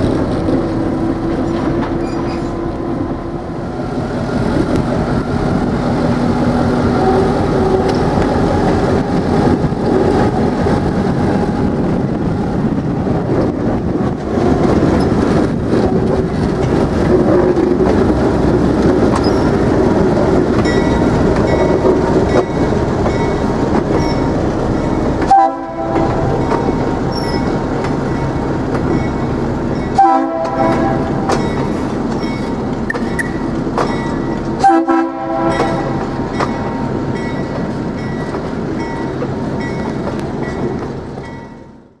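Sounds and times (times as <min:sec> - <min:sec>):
diesel locomotive running: 0:00.0 - 0:42.0
train horn blasts: 0:25.2 - 0:26.4, 0:30.0 - 0:31.4, 0:34.6 - 0:36.0.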